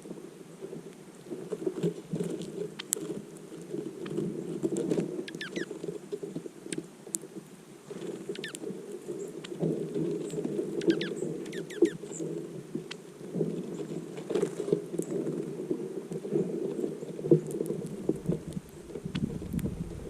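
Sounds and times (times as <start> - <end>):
low crackling patter: 0.0 - 20.0
songbirds chirping: 5.3 - 5.8, 8.3 - 14.0.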